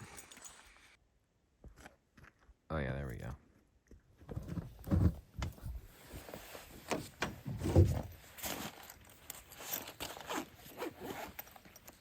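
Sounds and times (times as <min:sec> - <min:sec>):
knocks and thumps of handling: 0:04.2 - 0:05.8, 0:06.8 - 0:08.8.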